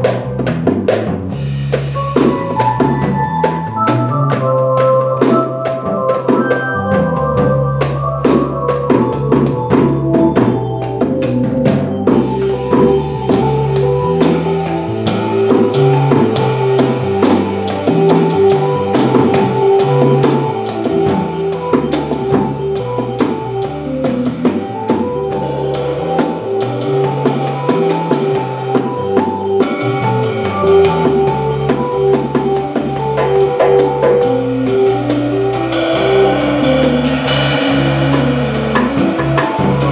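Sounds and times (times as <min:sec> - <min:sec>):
cymbals: 0:00.0 - 0:39.9
drum kit: 0:00.0 - 0:39.9
jazz organ: 0:00.0 - 0:39.9.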